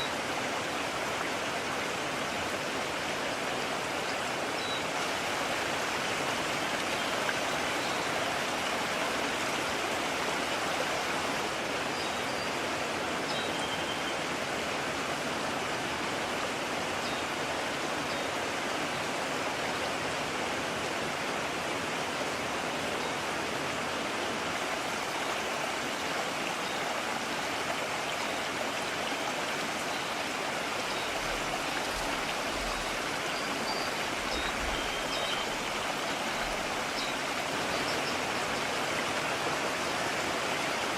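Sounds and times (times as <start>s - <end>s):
stream rushing: 0.0s - 40.9s.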